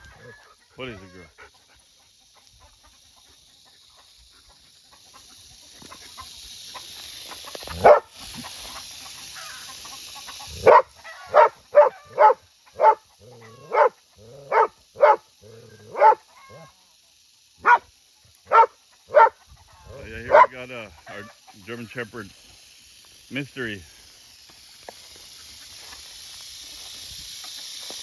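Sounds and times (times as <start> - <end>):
rattlesnake rattle buzzing: 0.0 - 28.0
dog barking: 7.7 - 8.1, 10.5 - 16.2, 17.6 - 17.9, 18.5 - 19.4, 20.3 - 20.6.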